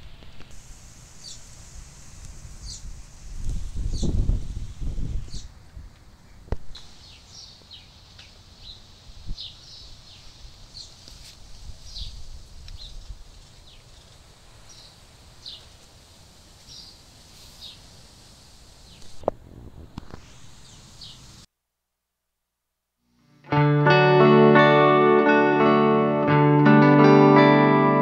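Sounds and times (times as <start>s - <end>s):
small birds chirping: 1.2s - 1.6s, 2.6s - 3.0s, 5.1s - 5.6s, 6.2s - 15.8s, 16.6s - 18.0s, 18.8s - 19.2s, 20.4s - 21.4s.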